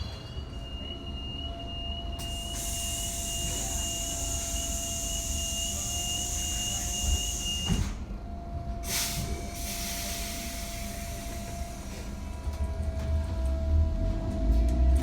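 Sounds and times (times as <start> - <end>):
electric train whine and rumble: 0.0 - 15.0
air hiss of pneumatic doors: 2.2 - 8.1, 8.8 - 12.1.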